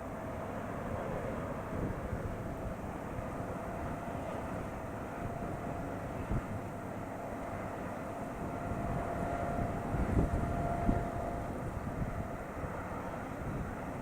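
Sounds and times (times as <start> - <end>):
faint steady whine: 0.0 - 14.0
jet engines droning: 0.0 - 14.0.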